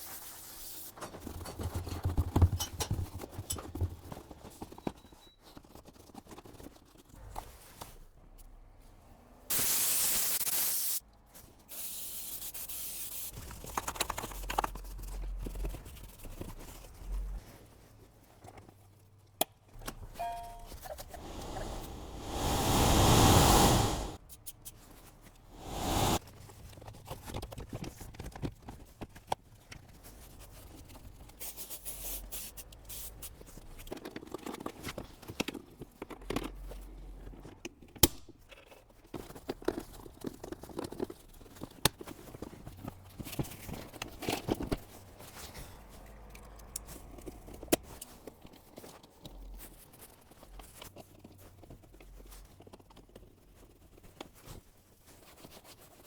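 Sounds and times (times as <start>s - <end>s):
loud rushing hiss: 21.2s - 24.2s, 25.6s - 26.2s.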